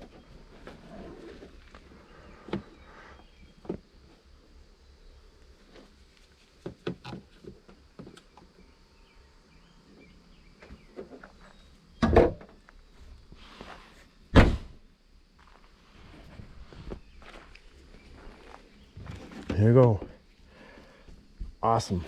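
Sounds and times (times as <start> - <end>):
car hood shutting thuds: 14.3 - 14.8.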